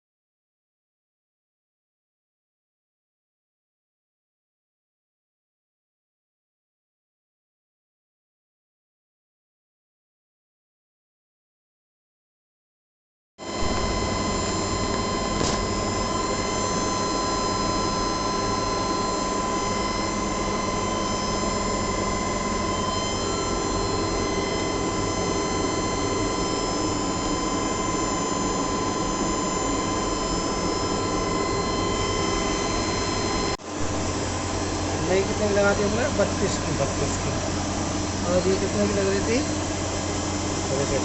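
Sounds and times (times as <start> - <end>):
high steady whining tones: 13.4 - 41.0
machine hum and fan noise: 13.4 - 41.0.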